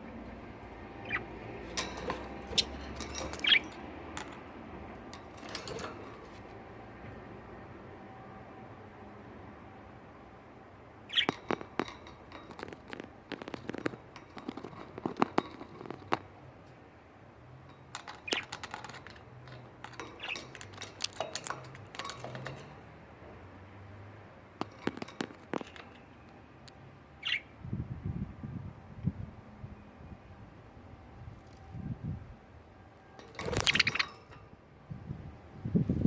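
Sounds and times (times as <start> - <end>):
budgies chirping: 0.5 - 3.9, 11.0 - 11.8, 18.0 - 19.2, 19.9 - 22.1, 27.2 - 27.6, 33.3 - 34.4.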